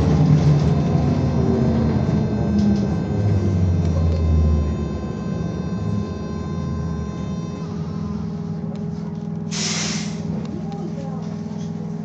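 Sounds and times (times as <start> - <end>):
electric drive tones: 0.0 - 8.6
road rumble inside bus: 0.0 - 12.0.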